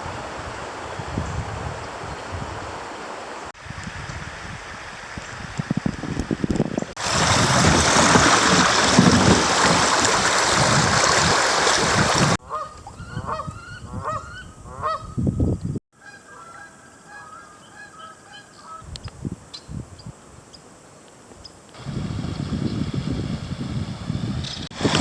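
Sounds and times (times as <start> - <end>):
geese honking: 12.4 - 15.1, 16.0 - 18.9.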